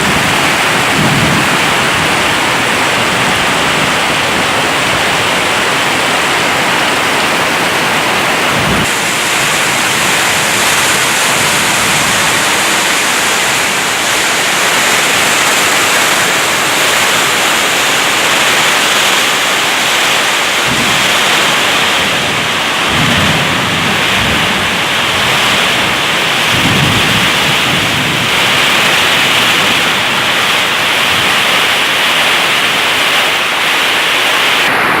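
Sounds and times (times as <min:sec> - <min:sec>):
low thunder rumbles: 0:00.0 - 0:19.2, 0:20.2 - 0:32.0
heavy rain hissing: 0:00.0 - 0:35.0.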